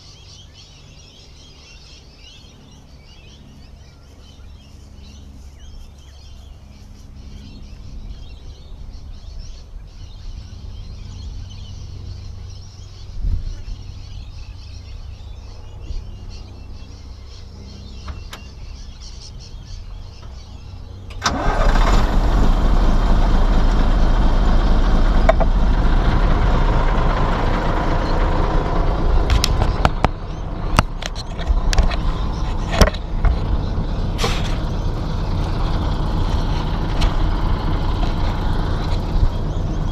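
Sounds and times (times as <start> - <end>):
diesel machinery engine running: 17.3 - 39.9
loud engine noise: 20.2 - 39.9.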